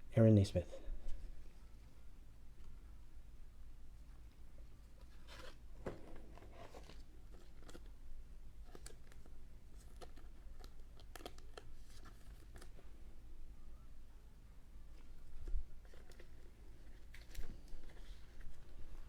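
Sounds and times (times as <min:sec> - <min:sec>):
cards crinkly rustle: 0:04.1 - 0:13.0, 0:14.9 - 0:19.0.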